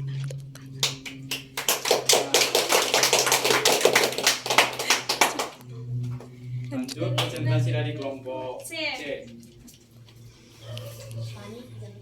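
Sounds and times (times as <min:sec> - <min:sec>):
people applauding: 0:00.8 - 0:05.6, 0:07.2 - 0:07.4.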